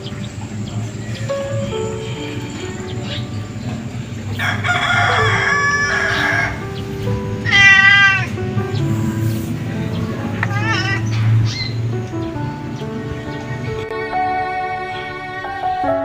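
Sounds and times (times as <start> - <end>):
background music: 0.0 - 16.0
animal calls: 7.4 - 8.4, 10.2 - 11.8.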